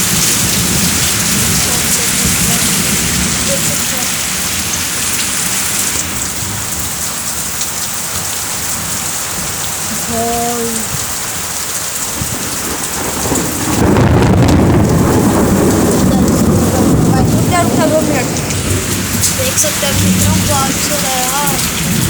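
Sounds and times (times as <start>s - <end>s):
deep rumble: 0.0s - 7.0s, 12.2s - 22.0s
heavy rain pouring: 0.0s - 22.0s.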